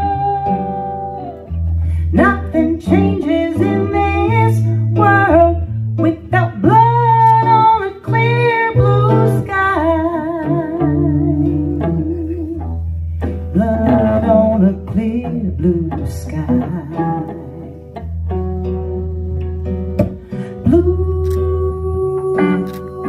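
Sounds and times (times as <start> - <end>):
guitar accompaniment: 0.0 - 23.0
person singing wordless melody: 2.0 - 12.8, 13.4 - 18.1, 20.4 - 23.0.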